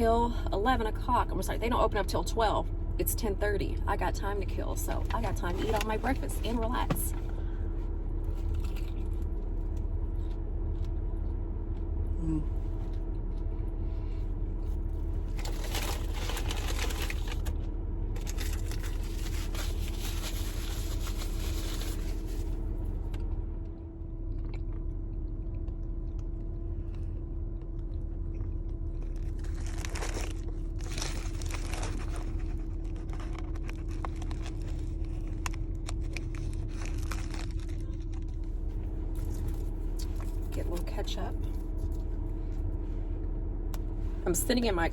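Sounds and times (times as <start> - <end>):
low hum inside car: 0.0 - 44.9
person chewing crunchy food: 7.3 - 17.5, 24.1 - 40.6.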